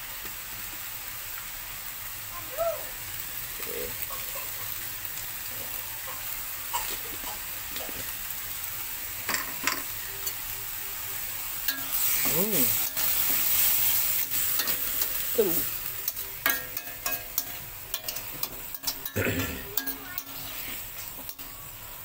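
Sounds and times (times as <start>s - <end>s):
greens sizzling in a pan: 0.0s - 22.0s
spatula clicking against pan: 16.0s - 19.2s, 19.8s - 20.4s.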